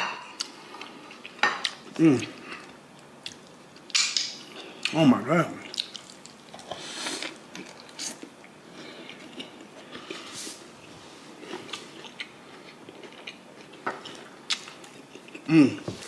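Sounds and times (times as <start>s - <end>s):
chewing burger: 5.6s - 10.7s, 11.3s - 16.0s.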